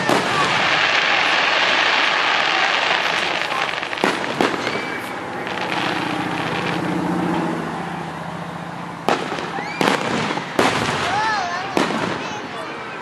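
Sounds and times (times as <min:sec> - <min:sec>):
crackling hiss: 0:00.0 - 0:08.0
firework bangs: 0:00.0 - 0:13.0.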